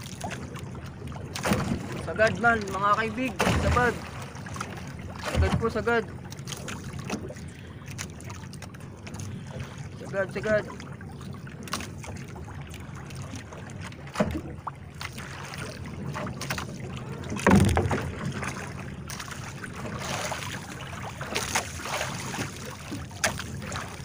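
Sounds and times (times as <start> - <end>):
boat engine droning: 0.0 - 24.0
water washing along hull: 0.0 - 24.0
knocks on boat: 1.3 - 5.9, 14.1 - 14.6, 16.1 - 19.2.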